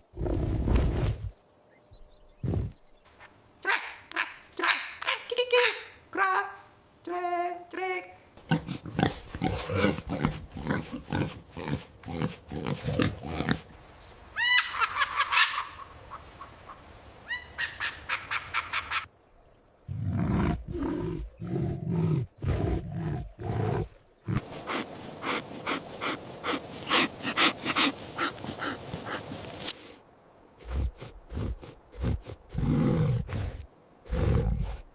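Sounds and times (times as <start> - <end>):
animal grunts and calls: 2.3 - 3.0, 8.4 - 13.8, 19.9 - 29.6, 30.6 - 34.9.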